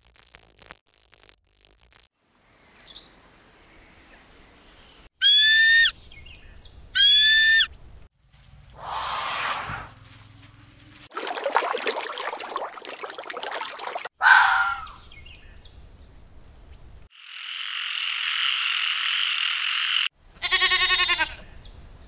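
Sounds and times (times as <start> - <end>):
high-pitched bird calls: 5.2 - 6.0, 7.0 - 7.8, 14.2 - 15.2
hiss: 8.8 - 9.9.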